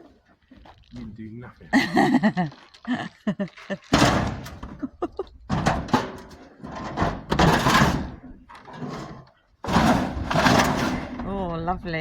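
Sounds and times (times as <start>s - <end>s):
scrap metal scraping and knocking: 5.5s - 11.5s.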